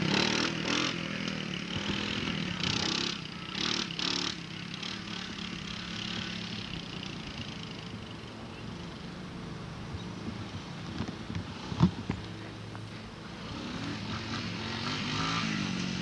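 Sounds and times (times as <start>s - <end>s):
small engine running: 0.0s - 9.4s, 13.2s - 16.0s.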